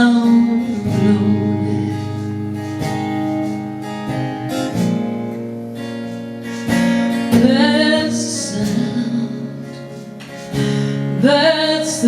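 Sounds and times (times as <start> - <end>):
acoustic guitar strumming: 0.0 - 12.0
person singing country ballad: 0.0 - 12.0.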